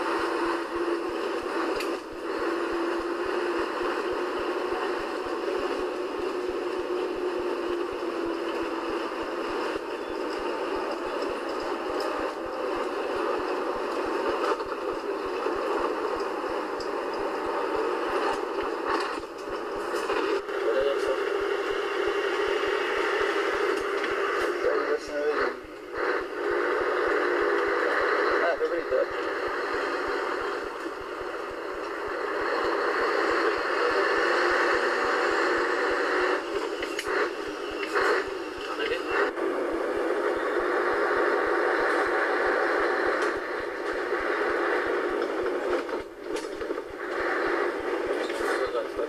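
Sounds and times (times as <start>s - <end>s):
diesel truck engine droning: 0.0s - 49.0s.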